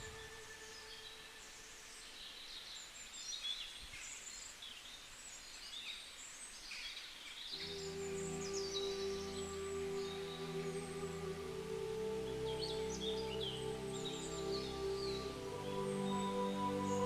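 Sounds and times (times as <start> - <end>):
music: 0.0 - 2.2, 7.6 - 17.0
birds chirping: 0.0 - 17.0
faint background hiss: 0.0 - 17.0.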